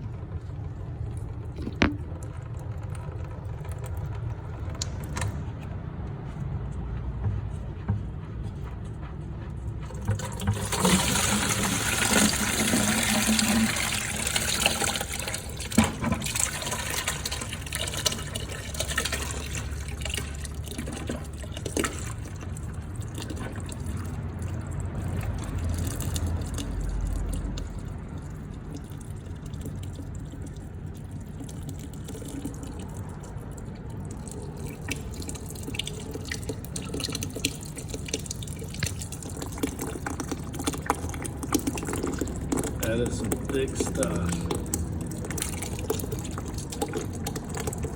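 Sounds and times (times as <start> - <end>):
liquid pouring out: 9.9 - 47.9.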